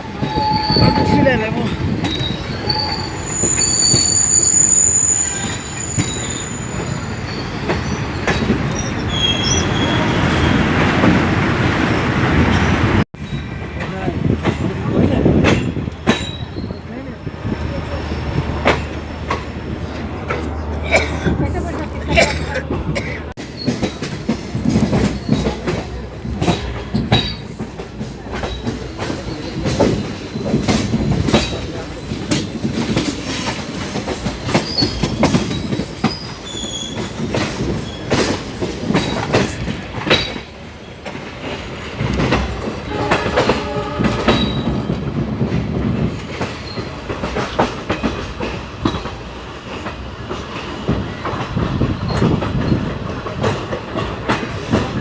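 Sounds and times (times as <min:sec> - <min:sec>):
train wheel squeals: 0:00.0 - 0:10.8, 0:12.5 - 0:13.6, 0:15.6 - 0:17.1, 0:23.4 - 0:25.8, 0:28.4 - 0:41.1, 0:42.9 - 0:45.1, 0:46.4 - 0:49.0, 0:50.6 - 0:53.0
train wheels clattering: 0:00.0 - 0:17.0, 0:17.9 - 0:55.0.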